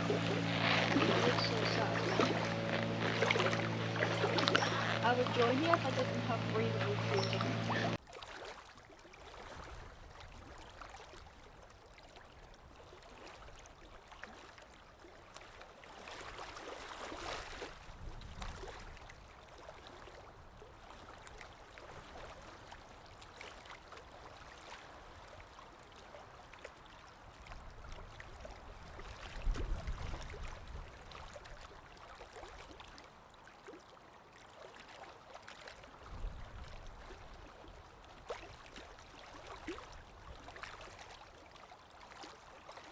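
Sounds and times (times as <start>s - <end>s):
low rumbles: 0.0s - 8.0s
stream flowing and trickling: 0.0s - 42.9s.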